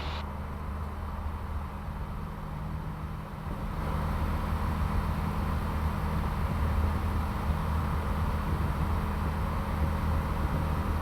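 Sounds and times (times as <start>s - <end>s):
propeller plane engine drone: 0.0s - 2.3s.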